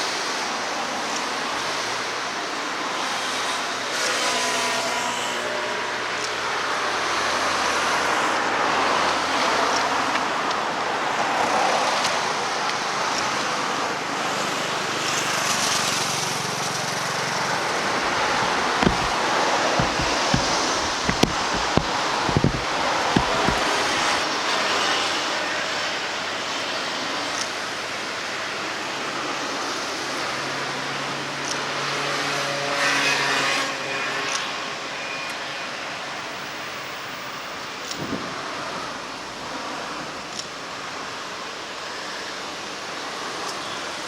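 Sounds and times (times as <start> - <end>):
wind thumps on microphone: 17.9 - 19.2, 19.8 - 24.2.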